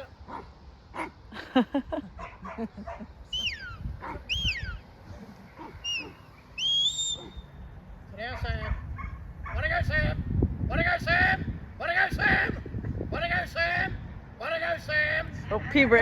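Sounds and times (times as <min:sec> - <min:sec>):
dogs barking and yipping: 0:00.0 - 0:01.3, 0:02.1 - 0:07.6, 0:08.3 - 0:09.7
high sliding calls: 0:03.3 - 0:07.7.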